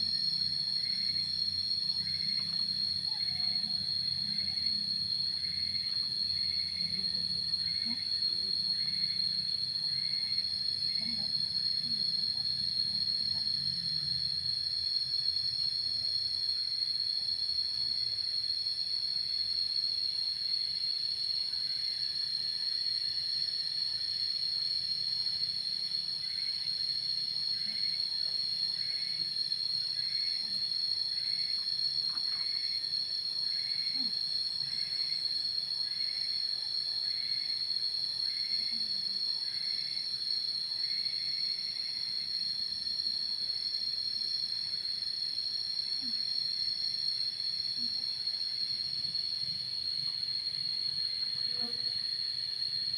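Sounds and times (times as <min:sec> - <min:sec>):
insects chirring: 0:00.0 - 0:52.9.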